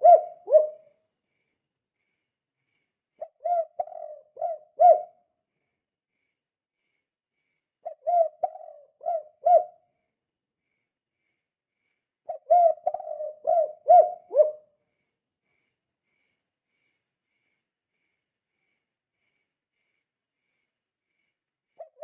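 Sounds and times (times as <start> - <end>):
dove cooing: 0.0 - 0.9, 3.2 - 5.2, 7.8 - 9.8, 12.3 - 14.7, 21.8 - 22.0.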